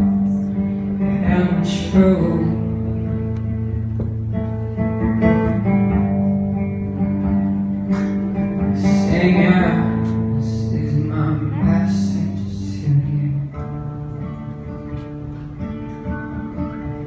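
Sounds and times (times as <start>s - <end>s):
acoustic guitar strumming: 0.0s - 17.0s
person singing: 8.6s - 13.8s.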